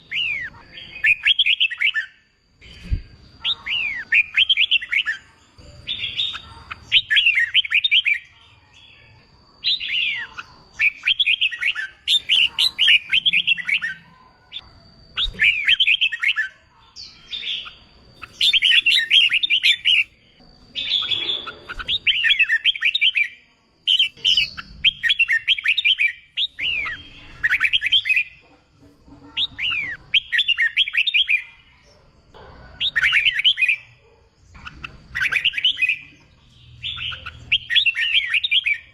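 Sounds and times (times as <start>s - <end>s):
bulbul warbling song: 10.9s - 14.0s, 18.2s - 20.2s.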